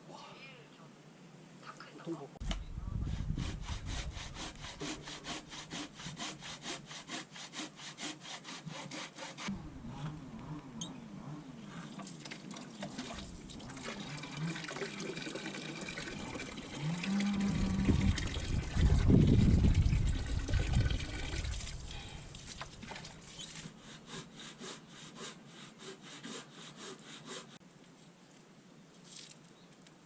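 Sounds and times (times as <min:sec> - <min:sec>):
saw cutting wood: 0:03.0 - 0:12.2, 0:23.4 - 0:27.6.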